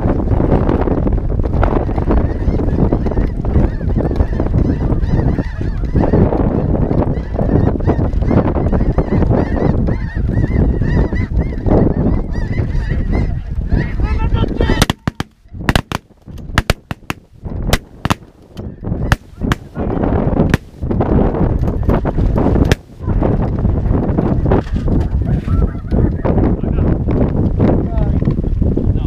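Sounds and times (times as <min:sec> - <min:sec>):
wind noise: 0:00.0 - 0:29.0
sharp cracks: 0:14.7 - 0:19.8, 0:20.5 - 0:20.9, 0:22.6 - 0:23.0.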